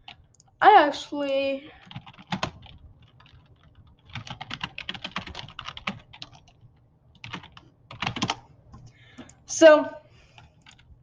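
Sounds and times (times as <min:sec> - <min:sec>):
typing on computer keyboard: 0:01.8 - 0:09.4, 0:10.3 - 0:10.9.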